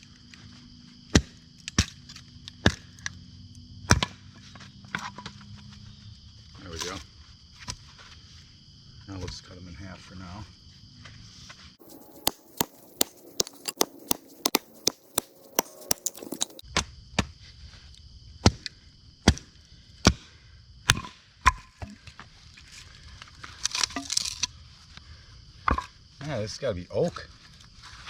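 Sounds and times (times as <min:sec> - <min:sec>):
axe chopping firewood: 0:01.1 - 0:02.0, 0:02.6 - 0:02.8, 0:03.9 - 0:04.2, 0:11.8 - 0:17.3, 0:18.4 - 0:18.6, 0:19.2 - 0:20.3, 0:20.9 - 0:22.0
wood splintering: 0:11.8 - 0:16.6.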